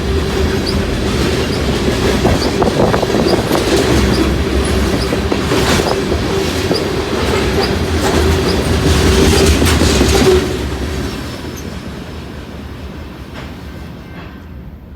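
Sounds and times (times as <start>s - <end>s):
train wheel clicks: 0.0s - 11.8s
freight train rolling past: 0.0s - 14.9s.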